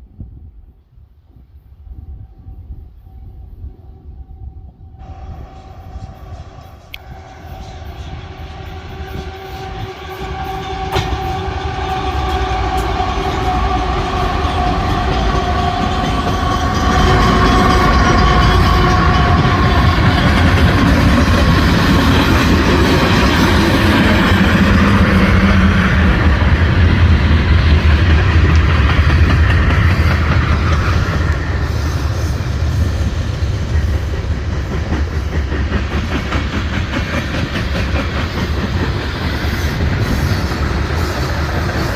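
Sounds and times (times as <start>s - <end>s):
train wheels clattering over rail joints: 6.0s - 41.9s.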